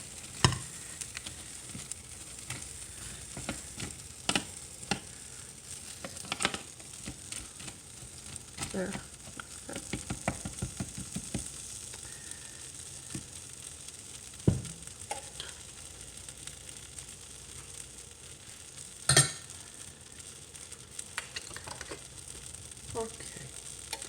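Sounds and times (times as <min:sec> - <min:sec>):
vegetables sizzling in a pan: 0:00.0 - 0:24.0
knock: 0:14.5 - 0:14.8.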